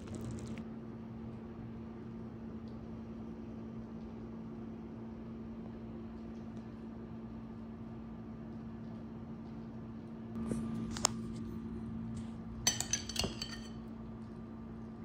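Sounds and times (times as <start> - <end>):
steady low hum: 0.0 - 2.3
spoon clinking against dish: 12.6 - 13.8.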